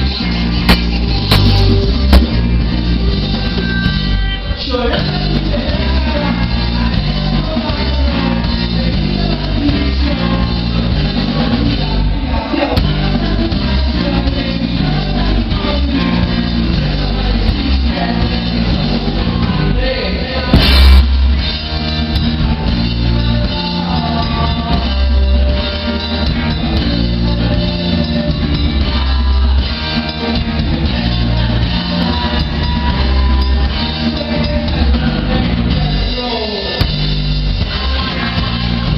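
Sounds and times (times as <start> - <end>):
bass guitar: 0.0 - 38.9
electric guitar: 0.0 - 38.9
drum kit beat: 0.4 - 4.3, 20.5 - 24.8.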